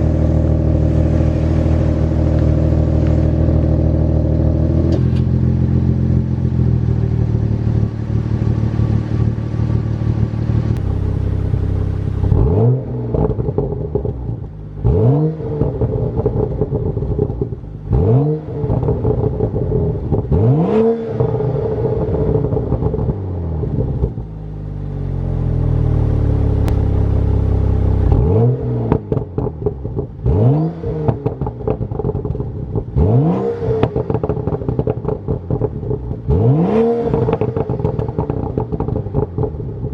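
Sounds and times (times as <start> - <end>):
exhaust crackles and pops: 0.0 - 6.6, 10.6 - 24.3, 25.2 - 39.9
car engine idling and revving: 0.0 - 39.9.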